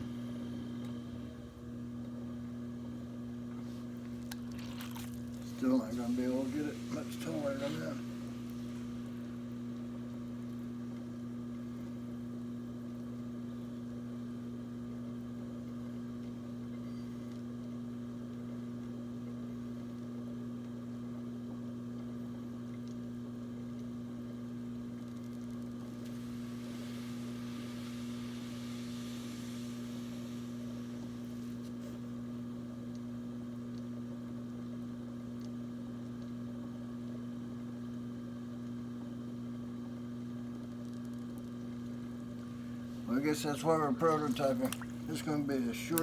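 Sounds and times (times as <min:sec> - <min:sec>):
potter's wheel humming: 0:00.0 - 0:13.4, 0:24.6 - 0:32.8, 0:41.6 - 0:46.0
soft hiss: 0:04.9 - 0:10.9, 0:25.5 - 0:32.2, 0:42.4 - 0:46.0.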